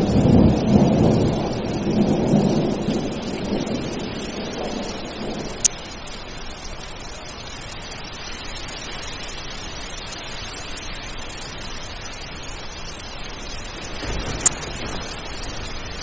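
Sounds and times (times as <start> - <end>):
thunder rumble: 0.0 - 6.0, 13.6 - 16.0
steady rain falling: 0.0 - 16.0.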